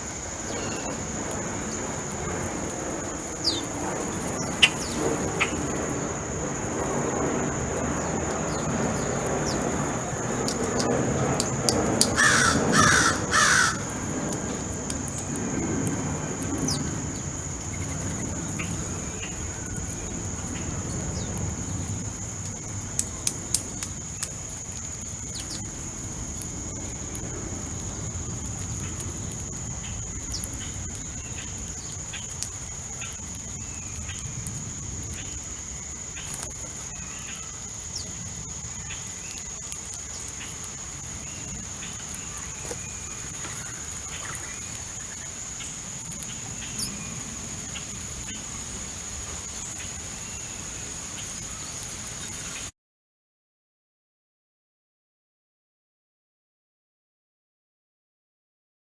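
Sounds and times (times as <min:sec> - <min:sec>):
small birds chirping: 0:00.0 - 0:52.7
harsh crow calls: 0:12.0 - 0:14.8.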